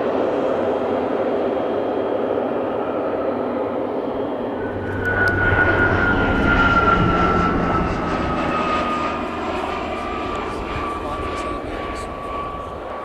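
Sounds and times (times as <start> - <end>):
light aircraft flying past: 4.1 - 13.0.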